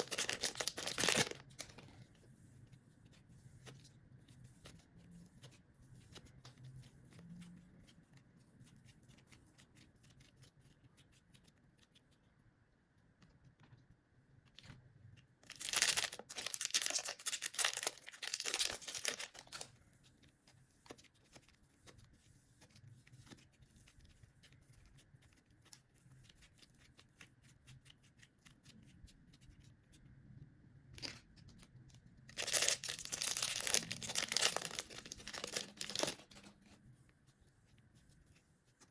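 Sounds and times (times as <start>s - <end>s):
slime crackling and tearing: 0.0s - 1.7s, 15.4s - 19.7s, 32.3s - 36.4s
slime stretching by hand: 30.9s - 38.9s.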